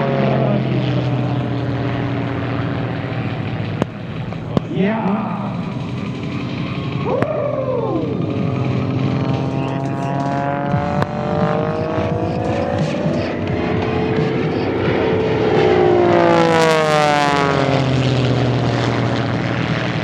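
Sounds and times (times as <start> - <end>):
propeller planes flying past: 0.0 - 20.0.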